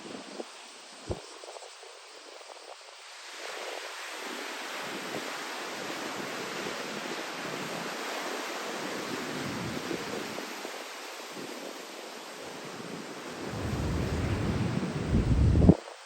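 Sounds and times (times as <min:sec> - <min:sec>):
rough surf breaking: 0:13.2 - 0:15.8
wind rushing over microphone: 0:13.2 - 0:15.9.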